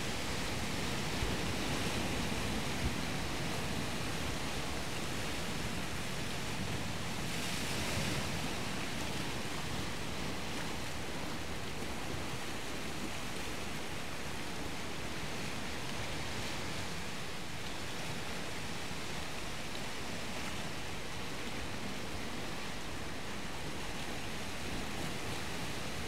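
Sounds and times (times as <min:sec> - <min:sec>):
sea surf washing on shore: 0:00.0 - 0:26.0.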